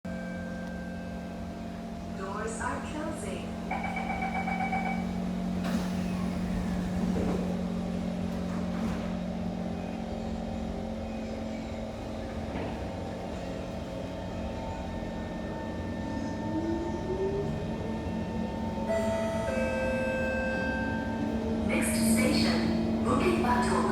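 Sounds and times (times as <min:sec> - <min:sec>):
train electrical hum and running noise: 0:00.1 - 0:23.9.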